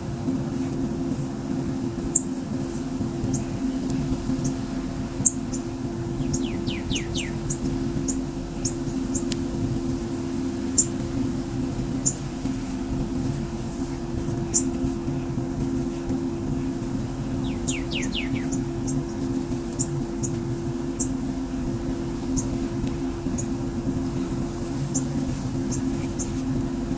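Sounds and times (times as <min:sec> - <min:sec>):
steady low hum: 0:00.0 - 0:26.9
small birds chirping: 0:05.2 - 0:09.3, 0:14.4 - 0:14.8, 0:17.2 - 0:19.1.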